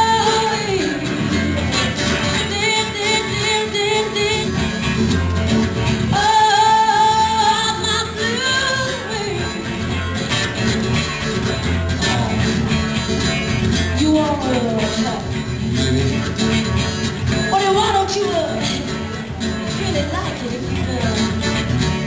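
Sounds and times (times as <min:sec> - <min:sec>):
person singing: 0:00.0 - 0:04.7, 0:06.1 - 0:10.1, 0:11.9 - 0:12.8
strummed guitar: 0:00.0 - 0:22.0.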